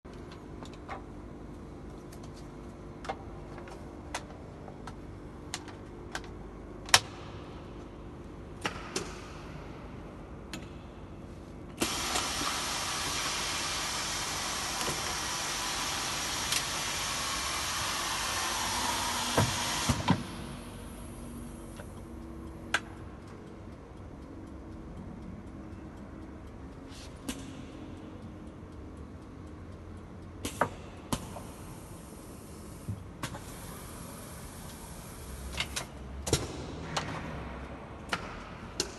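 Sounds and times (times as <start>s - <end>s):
loud air hiss: 11.8s - 21.4s, 31.5s - 35.6s
machine humming: 11.8s - 24.1s.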